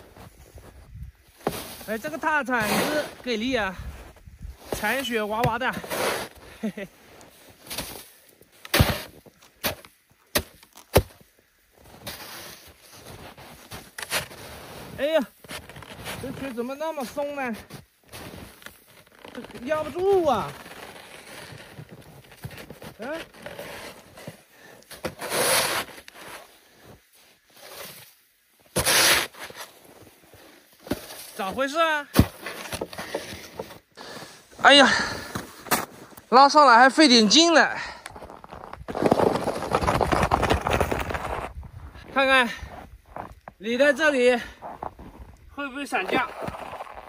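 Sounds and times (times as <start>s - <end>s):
snow shovel cutting into snow: 1.4s - 3.4s, 4.6s - 34.5s.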